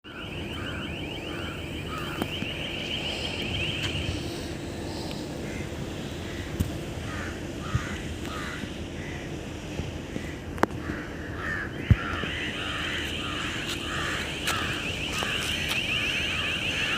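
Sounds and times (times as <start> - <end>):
outdoor background noise: 0.0 - 16.9
high rapid bird trill: 0.1 - 5.4, 11.5 - 16.9
birds calling: 0.1 - 9.4, 10.1 - 16.9.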